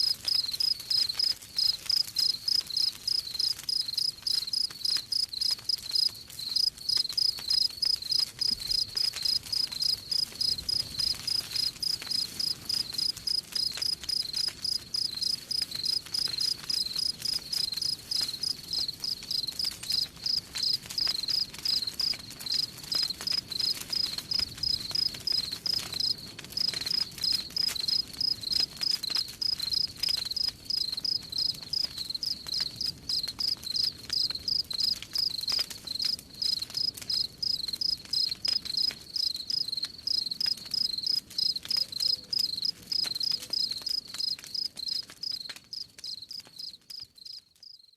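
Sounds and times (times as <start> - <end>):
campfire crackling: 0.0 - 47.8
crickets chirping: 0.3 - 22.7, 24.6 - 26.1, 27.8 - 28.6, 29.4 - 35.4, 36.0 - 47.8.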